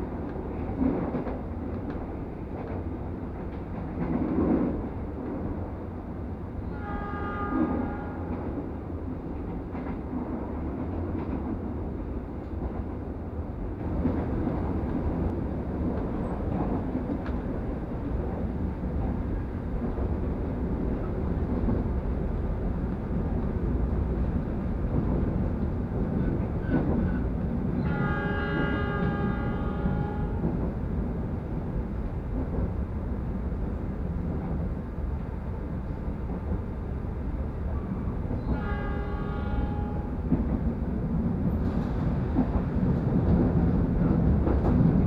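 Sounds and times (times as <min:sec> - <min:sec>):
train running rumble: 0:00.0 - 0:45.0
train horn: 0:06.6 - 0:08.7, 0:27.8 - 0:30.7, 0:38.4 - 0:40.4.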